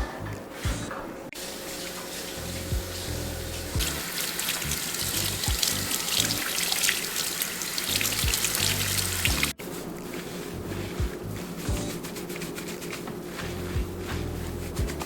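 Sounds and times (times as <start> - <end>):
water running from a tap: 1.4 - 9.6
music with low bass line: 2.5 - 4.0, 8.0 - 9.6, 10.6 - 12.0, 13.4 - 15.0.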